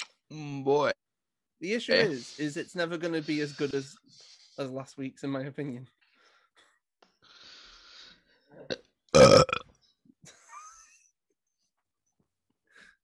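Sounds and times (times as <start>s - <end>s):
person burping: 8.7s - 9.6s.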